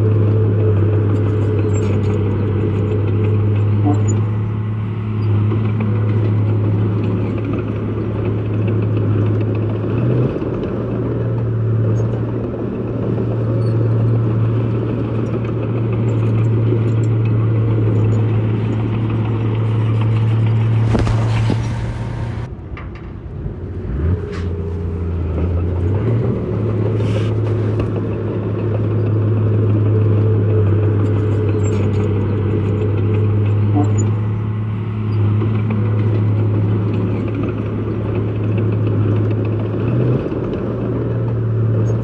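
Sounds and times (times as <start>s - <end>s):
heavy diesel engine under load: 0.0s - 42.0s
brief hiss: 20.8s - 22.5s.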